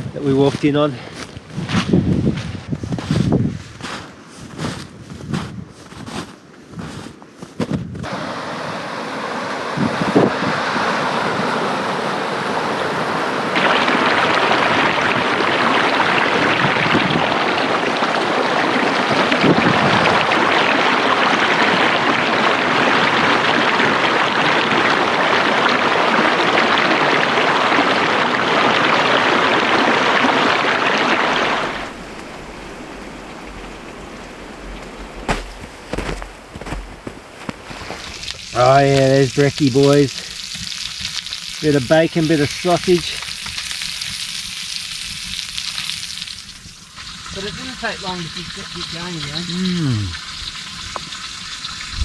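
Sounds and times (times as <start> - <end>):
creek water rushing: 8.1 - 38.9.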